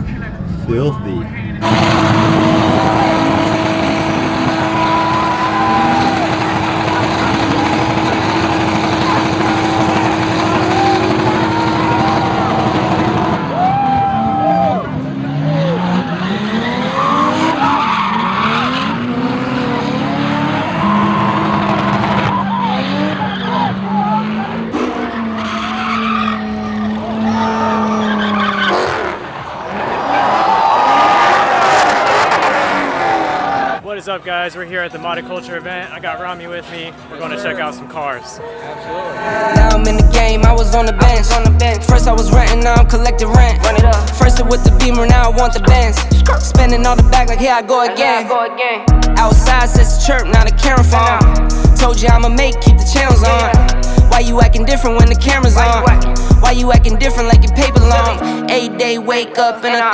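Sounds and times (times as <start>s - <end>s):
tyres squealing: 1.6s - 13.2s
car engine at high revs: 1.6s - 13.6s, 14.8s - 29.6s, 30.9s - 33.7s
tires squealing: 1.6s - 33.8s.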